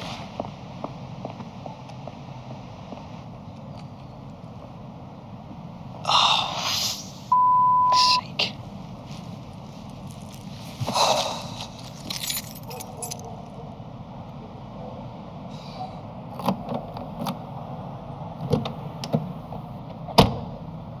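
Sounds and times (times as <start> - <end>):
low steady hum: 0.8 - 19.9
keys jangling: 10.0 - 13.5.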